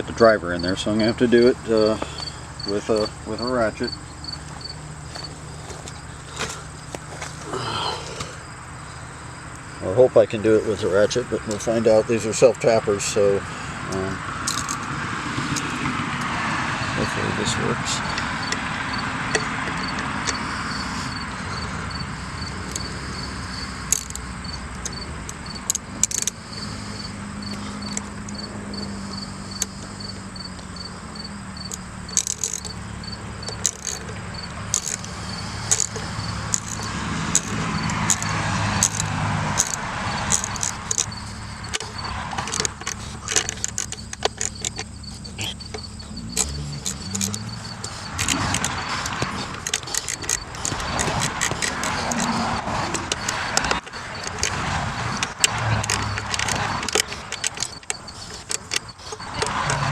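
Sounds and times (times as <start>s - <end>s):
socket ratchet clicking: 13.8s - 16.4s, 18.0s - 59.9s.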